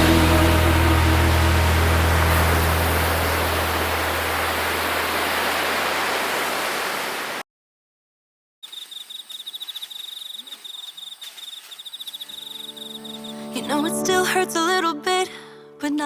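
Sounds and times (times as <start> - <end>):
music with low notes: 0.0 - 4.6
rushing hiss: 0.0 - 7.4
crickets chirping: 8.6 - 13.6.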